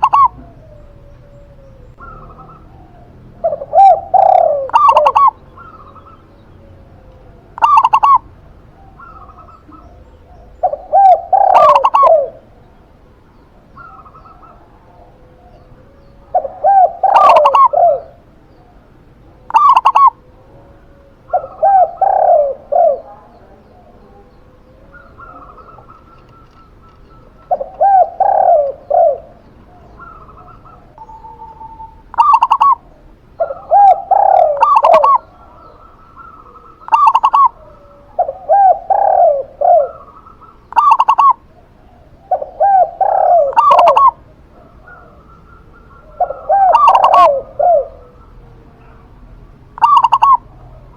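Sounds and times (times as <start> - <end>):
doves cooing: 0.0 - 50.9
faint bird chirping: 0.0 - 50.9.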